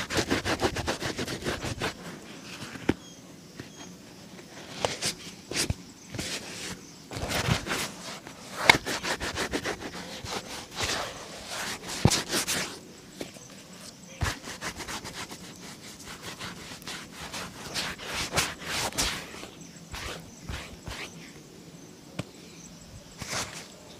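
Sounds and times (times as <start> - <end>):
brush scrubbing shoe: 0.0 - 2.2, 5.0 - 12.8, 14.1 - 21.2.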